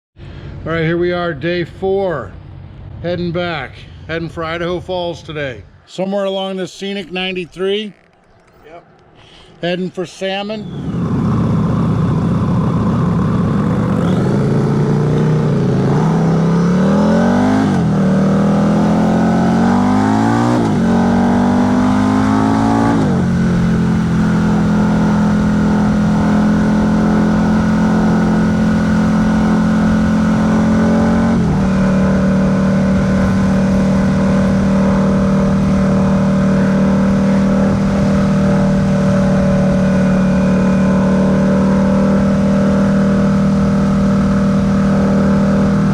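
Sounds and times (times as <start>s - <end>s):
road noise: 0.2s - 45.9s
motorcycle accelerating through gears: 10.6s - 45.9s
wind noise: 10.7s - 45.9s.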